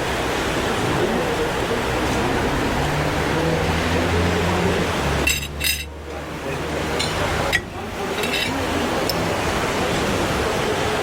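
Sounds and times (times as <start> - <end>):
tableware clinking: 5.2 - 6.0, 7.0 - 9.2.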